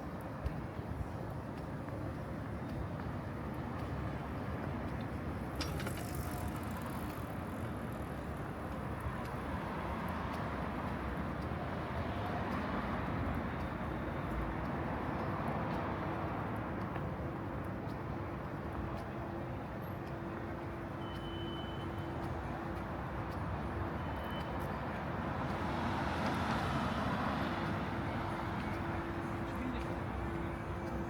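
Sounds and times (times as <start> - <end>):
street traffic noise: 0.0 - 31.0
vehicle passing: 25.4 - 31.0.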